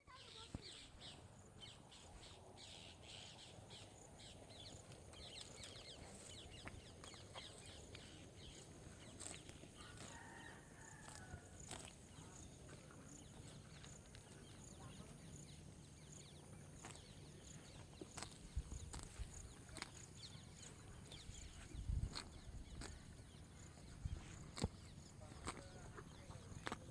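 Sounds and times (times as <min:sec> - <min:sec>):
small ticks: 0:06.6 - 0:10.3, 0:18.0 - 0:20.7, 0:22.0 - 0:23.0, 0:26.6 - 0:26.9
faint chicken clucking: 0:07.0 - 0:14.2, 0:21.5 - 0:26.8.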